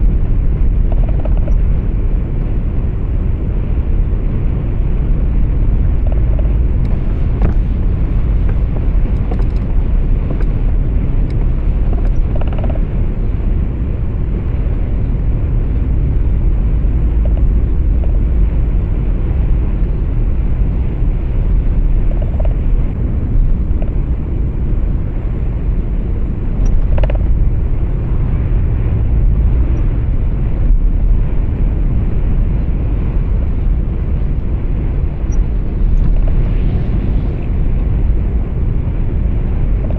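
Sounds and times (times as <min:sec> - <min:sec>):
road noise: 0:00.0 - 0:39.9
truck engine rumble: 0:00.0 - 0:39.9
faint ticks: 0:00.8 - 0:01.7, 0:05.9 - 0:13.0, 0:17.2 - 0:18.2, 0:26.6 - 0:27.4.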